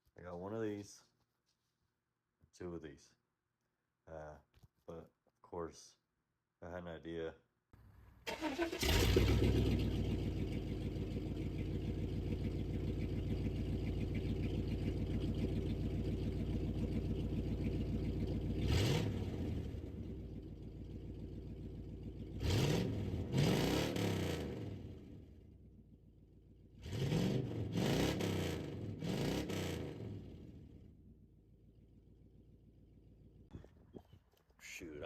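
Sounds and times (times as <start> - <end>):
engine starting and idling: 8.2 - 23.1
engine revving: 8.3 - 25.4, 26.8 - 30.9.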